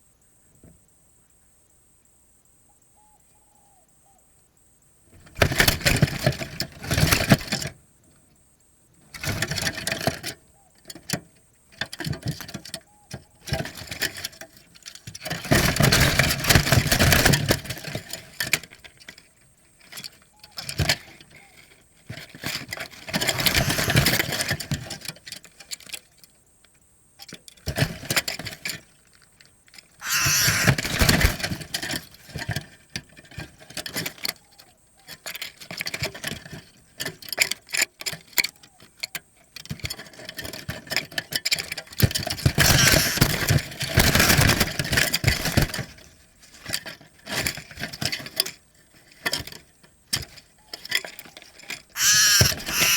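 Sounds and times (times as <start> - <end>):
dove cooing: 2.8 - 4.3, 23.2 - 24.3, 30.0 - 31.4, 42.6 - 43.5, 52.0 - 52.9.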